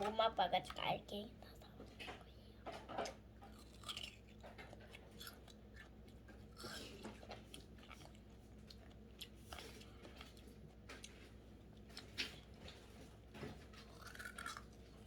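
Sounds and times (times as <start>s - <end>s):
low room hum: 0.0s - 15.0s
child chewing ice cream: 3.0s - 15.0s.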